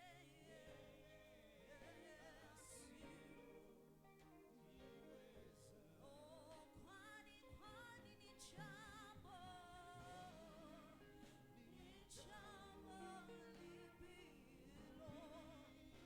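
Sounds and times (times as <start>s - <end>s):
instrumental backing: 0.0s - 16.0s
person singing with vibrato: 4.8s - 16.0s.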